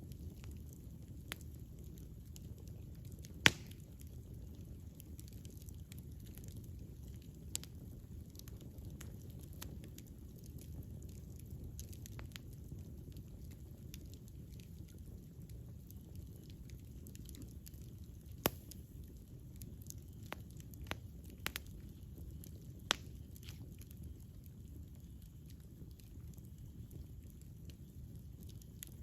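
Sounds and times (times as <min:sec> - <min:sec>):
burning wood crackling and popping: 0:00.0 - 0:29.0
campfire rumbling: 0:00.0 - 0:29.0.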